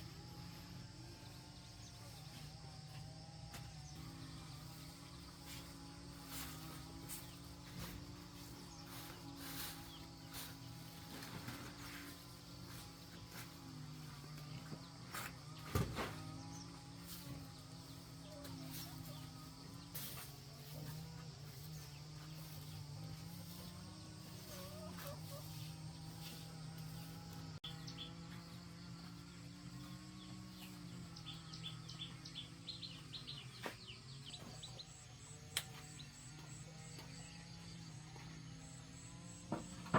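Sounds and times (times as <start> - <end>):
low steady drone: 0.0 - 15.4
insect chorus buzzing: 0.0 - 39.9.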